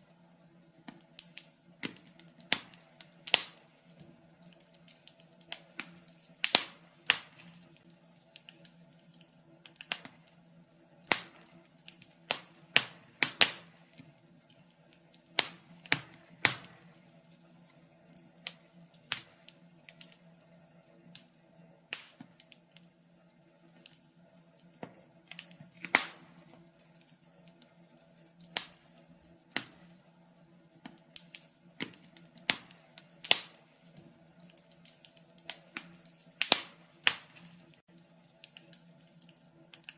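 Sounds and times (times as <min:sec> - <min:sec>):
faint steady hum: 0:00.0 - 0:39.9
fire crackling and popping: 0:00.0 - 0:39.9.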